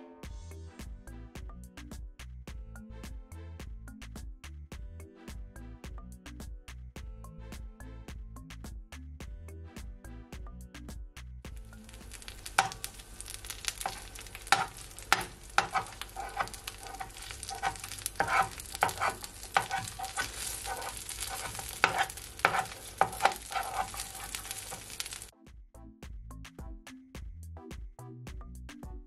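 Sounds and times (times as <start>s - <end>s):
tortilla sizzling in oil: 11.6s - 25.3s.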